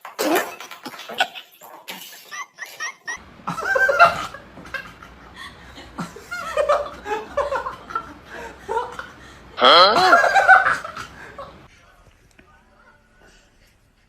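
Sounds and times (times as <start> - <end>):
people chuckling: 0.2 - 11.7.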